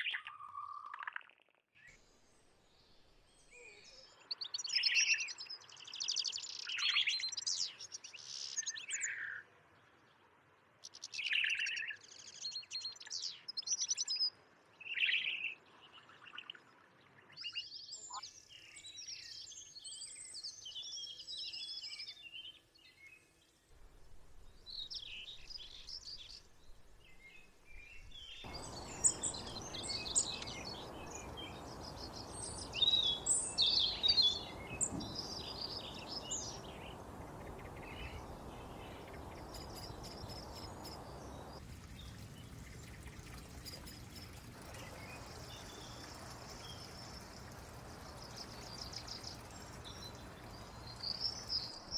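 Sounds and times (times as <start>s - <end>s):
songbirds singing and chirping: 0.0s - 10.1s, 10.8s - 51.9s
steady background hiss: 23.8s - 51.9s.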